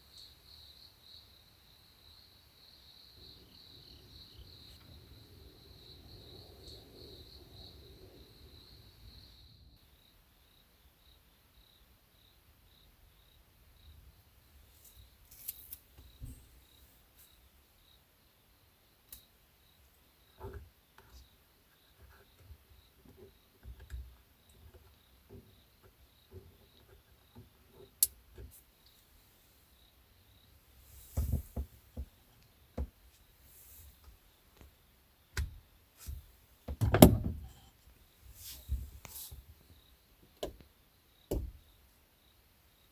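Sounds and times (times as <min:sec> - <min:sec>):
cricket chirping: 0:00.0 - 0:42.9
heavy thump with rattle: 0:31.2 - 0:32.2, 0:35.4 - 0:37.6, 0:41.3 - 0:41.6
soft knock: 0:41.3 - 0:41.6.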